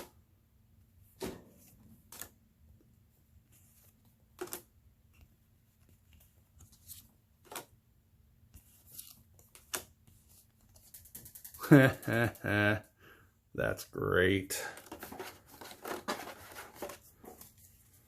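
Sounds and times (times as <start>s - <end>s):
cards tapping and rustling: 3.5s - 4.8s, 5.8s - 7.8s, 8.6s - 11.6s, 14.6s - 18.0s.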